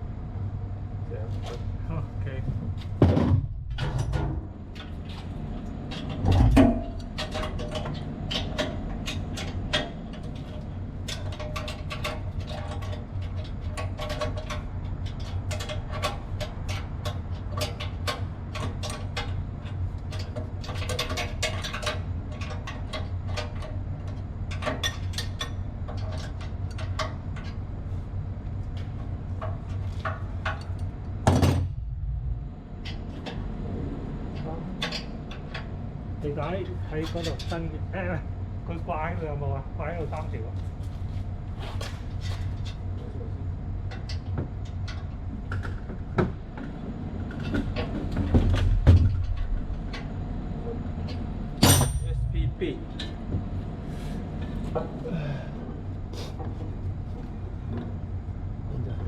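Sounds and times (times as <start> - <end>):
machinery hum: 0.0 - 59.0
metallic clicks and knocks: 5.9 - 27.6.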